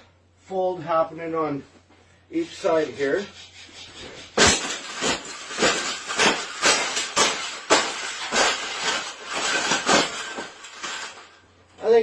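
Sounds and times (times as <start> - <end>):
hard sharp blows: 3.6 - 11.2.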